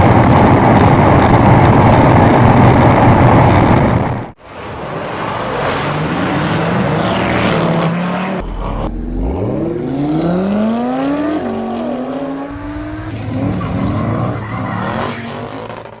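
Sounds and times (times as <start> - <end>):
car engine accelerating hard: 5.1 - 16.0.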